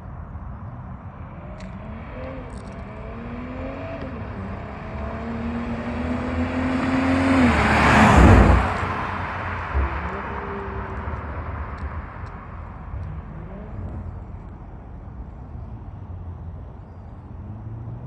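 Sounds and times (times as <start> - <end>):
car accelerating past: 1.7 - 14.1.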